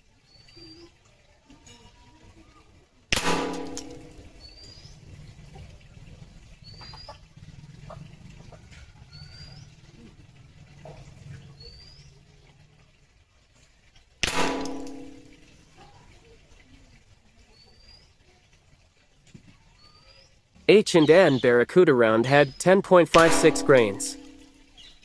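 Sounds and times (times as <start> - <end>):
air rifle shot: 3.1 - 4.3, 14.2 - 15.4, 23.2 - 24.5.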